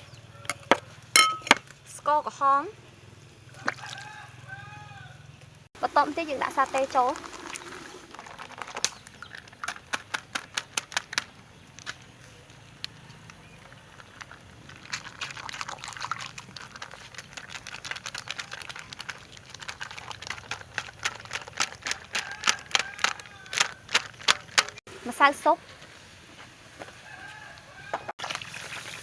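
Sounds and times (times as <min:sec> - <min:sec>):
spoon tapping against bowl: 0:01.2 - 0:01.6.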